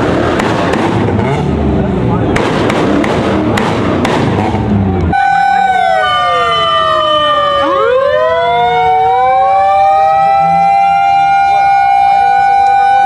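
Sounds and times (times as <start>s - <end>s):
emergency sirens wailing: 4.4s - 13.0s.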